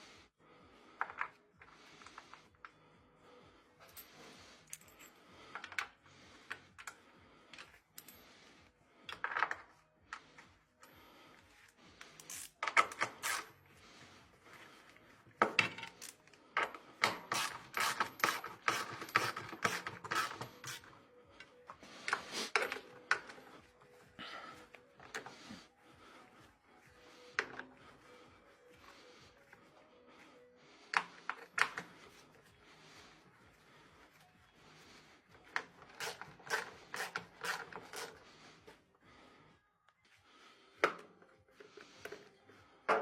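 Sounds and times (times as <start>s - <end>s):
tools and metal parts clinking: 3.8s - 8.3s, 15.4s - 20.9s, 21.6s - 23.6s.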